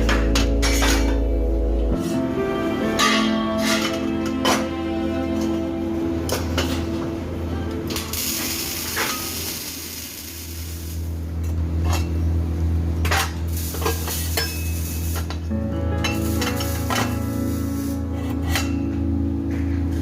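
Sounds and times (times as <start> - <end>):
welding arc crackling and sizzling: 7.9 - 11.9, 13.1 - 18.6.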